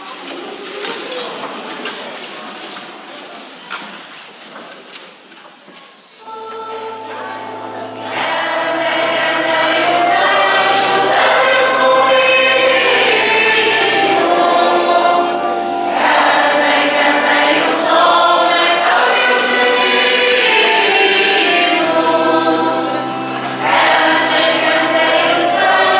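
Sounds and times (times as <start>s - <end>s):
church choir singing a hymn: 6.2s - 25.9s.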